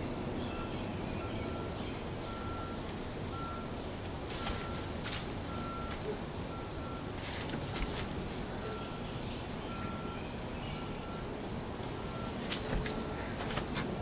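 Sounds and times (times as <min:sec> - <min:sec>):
faint bird chirps: 0:08.3 - 0:13.8.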